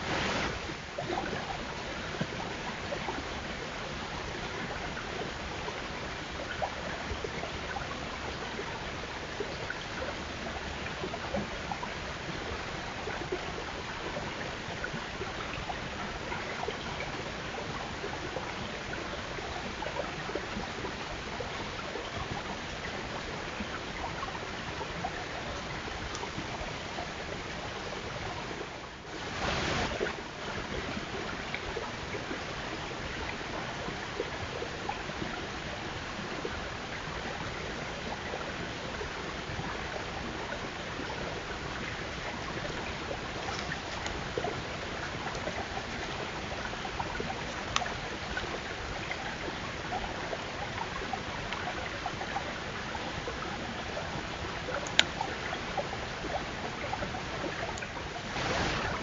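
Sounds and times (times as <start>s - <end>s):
rushing hiss-like outdoor noise: 0.0s - 59.0s
faint ticks: 25.1s - 27.2s, 30.7s - 32.4s, 41.0s - 52.5s, 53.1s - 58.0s.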